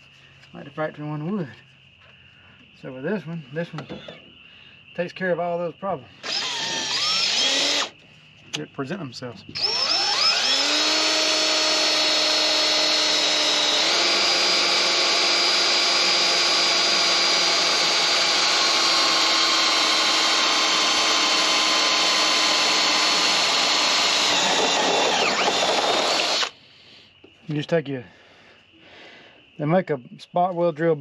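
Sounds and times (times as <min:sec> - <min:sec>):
electric drill drilling sheet metal: 0:06.2 - 0:08.0, 0:09.6 - 0:26.6.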